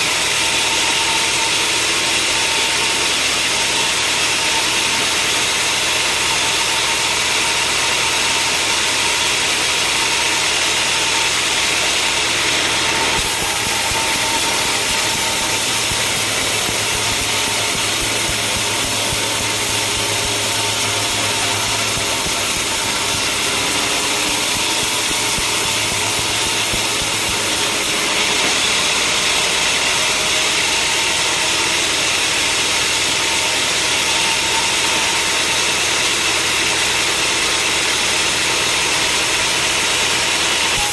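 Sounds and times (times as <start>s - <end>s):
sawmill machinery running: 0.0s - 40.9s.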